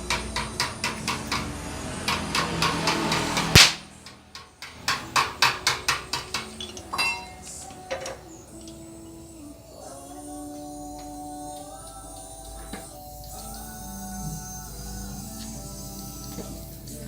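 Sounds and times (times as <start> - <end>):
hammer on sheet metal: 0.0 - 6.7
faint music: 0.0 - 17.0.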